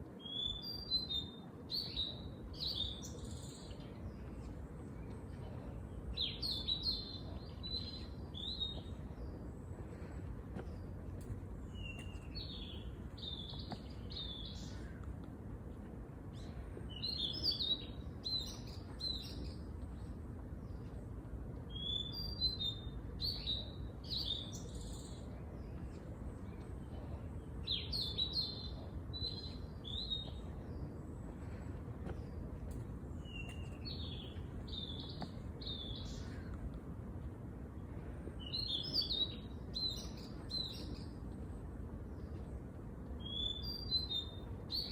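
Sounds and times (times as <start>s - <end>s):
bird chirping: 0.2s - 15.1s, 21.7s - 36.6s, 43.2s - 44.9s
steady low hum: 1.2s - 43.2s.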